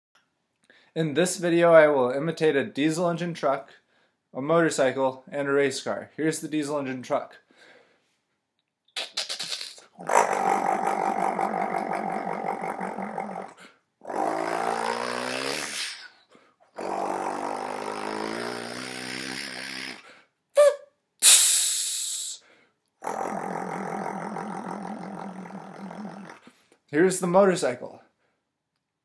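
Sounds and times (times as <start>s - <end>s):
person imitating truck engine: 9.0s - 16.2s, 16.8s - 22.4s, 23.0s - 26.5s
short sharp hiss: 21.2s - 22.4s.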